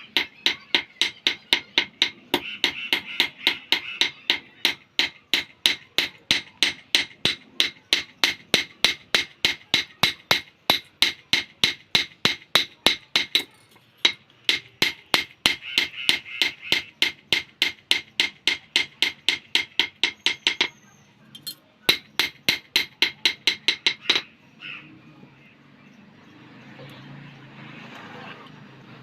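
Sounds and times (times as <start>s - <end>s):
hammer striking metal blade: 21.4s - 24.2s.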